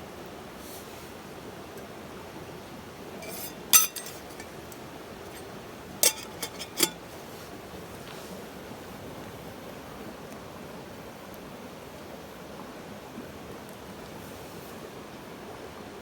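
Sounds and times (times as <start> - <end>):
cups and utensils clinking: 3.2 - 7.0.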